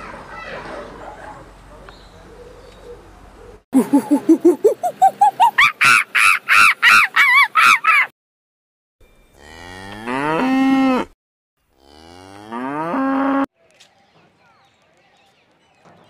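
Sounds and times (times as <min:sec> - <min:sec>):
primate high rising calls: 0:03.8 - 0:08.1
cow mooing: 0:09.4 - 0:13.5.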